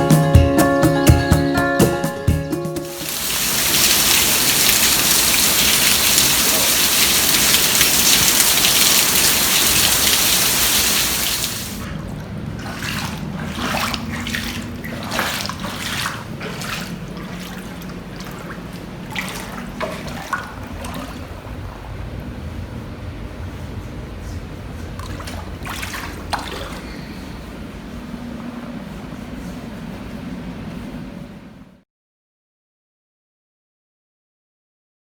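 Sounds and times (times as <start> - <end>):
water rushing: 2.8 - 22.0
short splashes and crackles: 2.9 - 21.5, 25.0 - 27.3.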